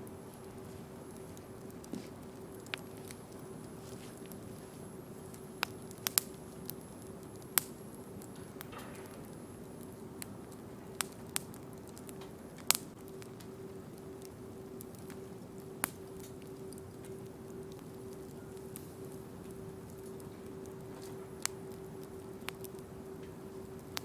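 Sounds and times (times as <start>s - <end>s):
bonfire crackling: 0.0s - 24.0s.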